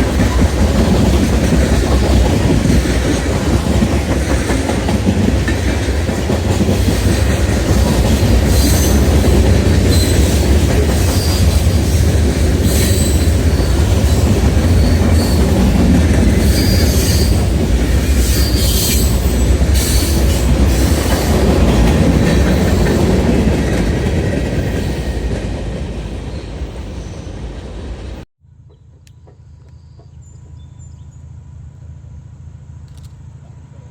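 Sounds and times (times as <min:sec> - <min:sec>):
wheels clicking over rails: 0:00.0 - 0:25.7
freight train rumbling past: 0:00.0 - 0:33.9
wheels squealing: 0:08.4 - 0:21.6.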